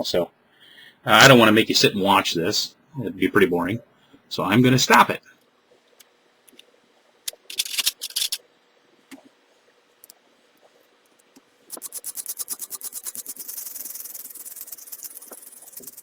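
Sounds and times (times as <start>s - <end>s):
brush scrubbing metal contacts: 7.5s - 8.4s, 11.7s - 16.0s.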